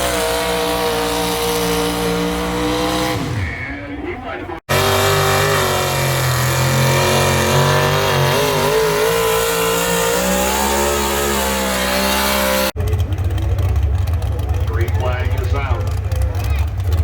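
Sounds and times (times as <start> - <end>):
rough low engine rumble: 0.0 - 17.0
tractor engine revving hard: 0.0 - 17.0.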